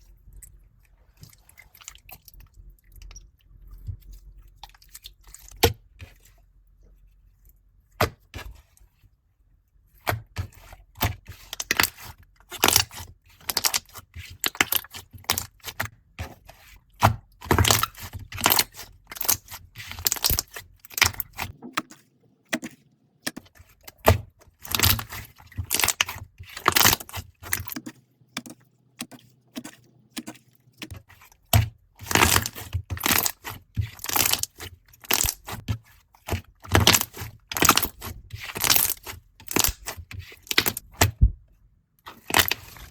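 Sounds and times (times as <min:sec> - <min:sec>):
slime crackling and popping: 0:32.0 - 0:35.6.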